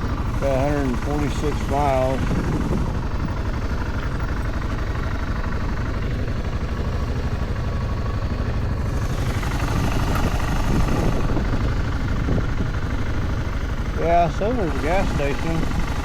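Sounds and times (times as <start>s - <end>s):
motorcycle engine: 0.0s - 16.0s
road rumble: 0.0s - 16.0s
wind buffeting microphone: 0.4s - 3.3s, 9.0s - 13.4s.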